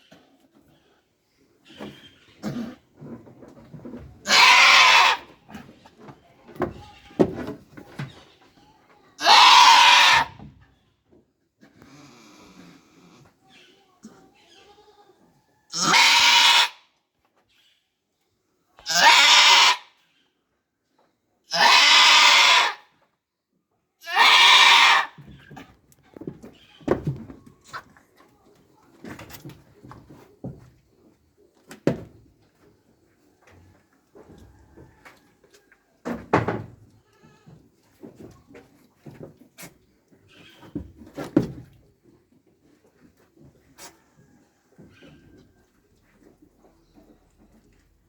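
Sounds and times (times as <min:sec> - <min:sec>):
goat bleating: 0:04.2 - 0:05.3, 0:09.2 - 0:10.4, 0:15.7 - 0:16.7, 0:18.8 - 0:19.9, 0:21.5 - 0:22.8, 0:24.0 - 0:25.2
knocks and rustling: 0:25.2 - 0:32.8, 0:36.0 - 0:36.9, 0:37.5 - 0:43.8.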